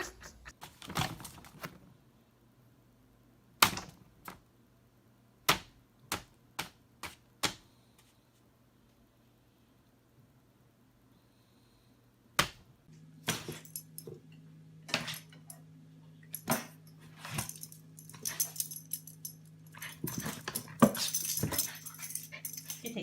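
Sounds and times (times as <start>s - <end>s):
steady low hum: 10.7s - 23.0s.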